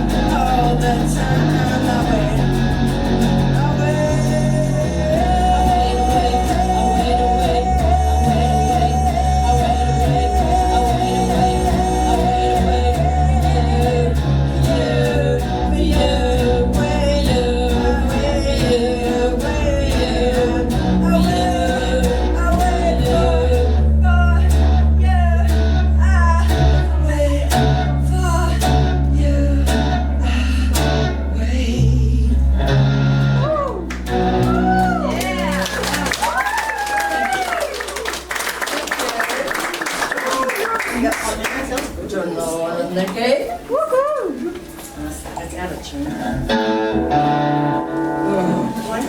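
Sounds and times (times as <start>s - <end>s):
live band music: 46.2s - 49.0s.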